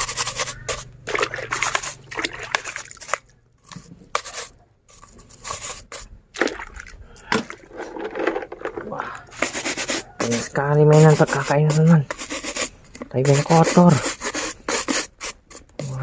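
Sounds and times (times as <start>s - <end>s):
water sloshing and splashing: 0.7s - 4.3s, 5.4s - 9.4s.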